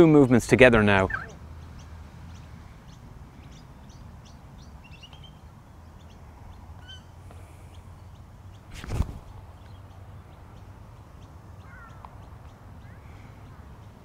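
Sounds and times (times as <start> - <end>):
faint bird chirps: 0.9 - 9.0.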